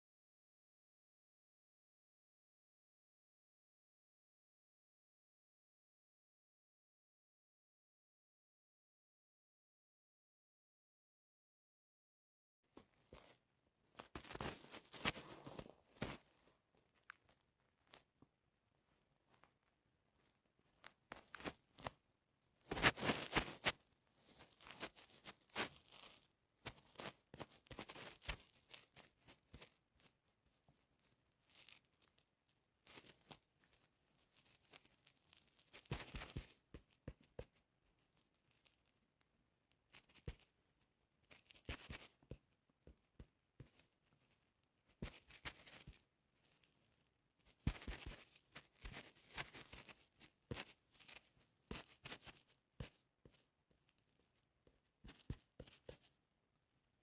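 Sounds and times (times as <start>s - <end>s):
rustling and crinkling: 12.7s - 57.0s.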